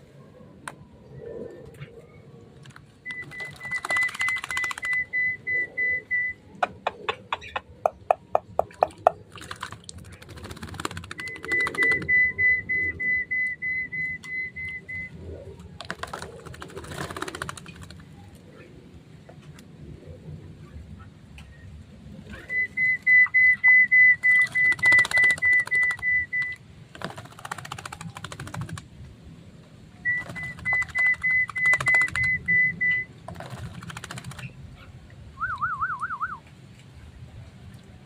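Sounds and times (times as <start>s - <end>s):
sharp clicks: 2.6s - 5.0s
birds chirping rapidly: 6.6s - 12.3s, 30.1s - 32.6s.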